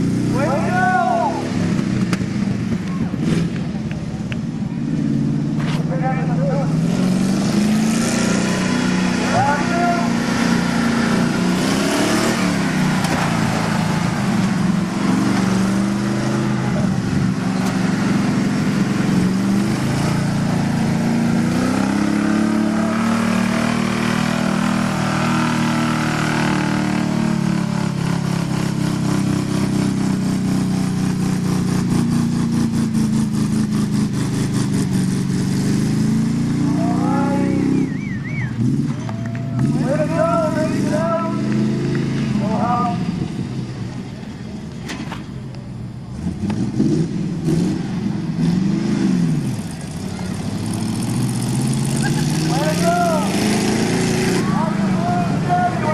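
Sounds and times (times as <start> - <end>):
truck engines revving: 0.0 - 55.9.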